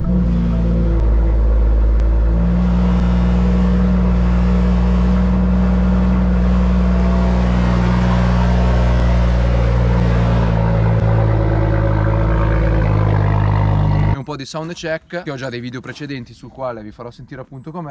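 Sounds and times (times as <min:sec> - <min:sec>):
car engine running steadily: 0:00.0 - 0:14.2.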